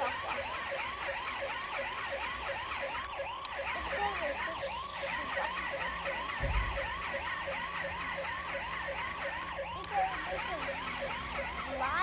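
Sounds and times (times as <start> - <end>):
toy fire truck siren wailing: 0.0 - 12.0
low thump: 6.4 - 6.9.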